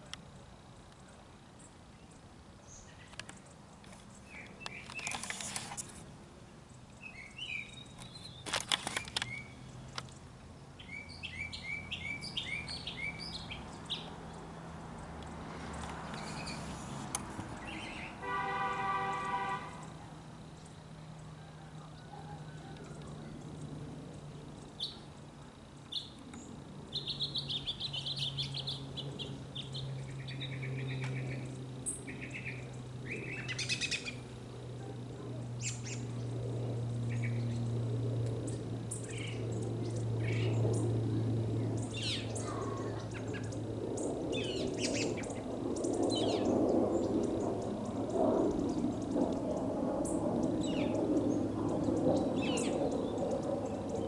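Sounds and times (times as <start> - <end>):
small birds chirping: 0.0 - 5.9, 6.5 - 18.2, 19.1 - 36.4, 37.0 - 54.0
low falling hum: 0.0 - 54.0.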